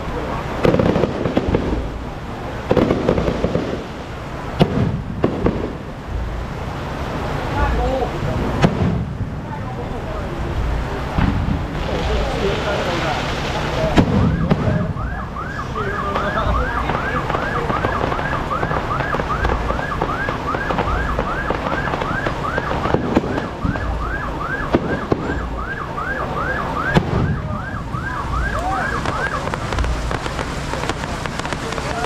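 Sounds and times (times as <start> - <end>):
low thumps: 0.6 - 6.8, 8.3 - 9.8, 10.4 - 12.3, 13.8 - 25.8, 26.6 - 32.0
electronic siren yelping: 14.0 - 29.9.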